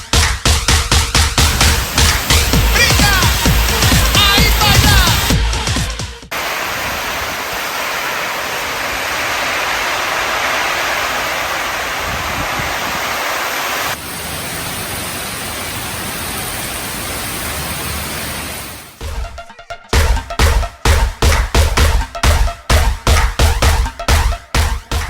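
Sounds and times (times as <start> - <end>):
heavy rain and wind hiss: 1.4 - 5.4, 6.3 - 19.0.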